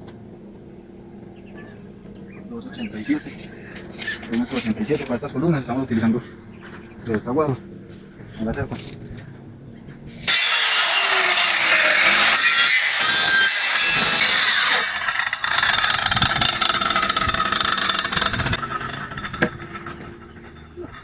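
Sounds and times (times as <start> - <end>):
power saw cutting bamboo: 10.2 - 21.0.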